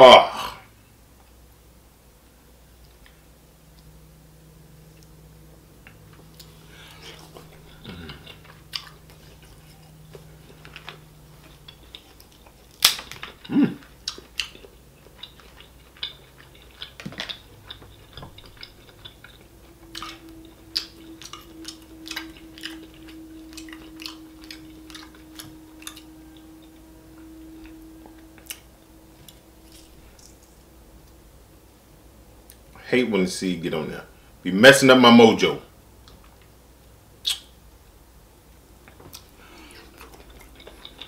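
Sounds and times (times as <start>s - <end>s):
wet chewing and mouth smacks: 5.8s - 31.2s, 37.2s - 37.6s, 38.8s - 41.0s
seafood shell cracking: 10.6s - 13.5s.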